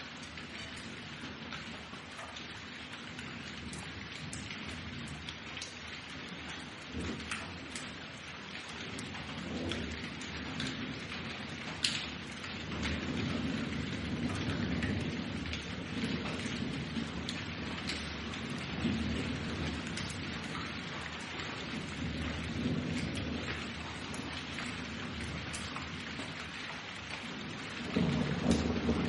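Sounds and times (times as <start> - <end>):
steady rain with sharp drops: 0.0 - 29.0
low rumbling thunder: 6.3 - 29.0.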